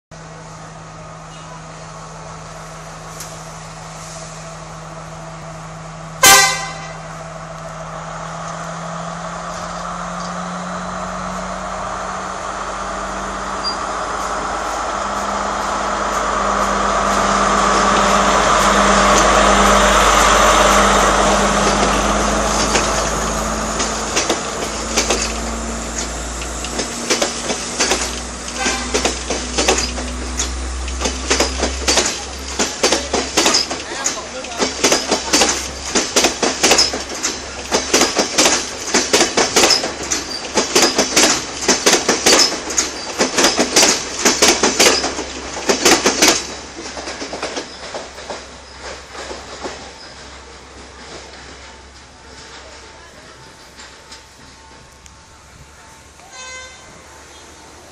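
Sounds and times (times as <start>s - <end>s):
diesel train running: 0.1s - 57.9s
train horn blast: 6.2s - 7.2s, 28.5s - 29.2s, 56.2s - 57.1s
wheels clacking over rail joints: 12.2s - 56.5s.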